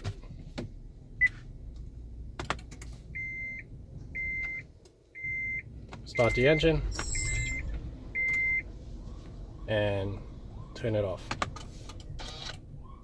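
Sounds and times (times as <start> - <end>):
dashboard warning chime beeps: 3.1 - 8.7.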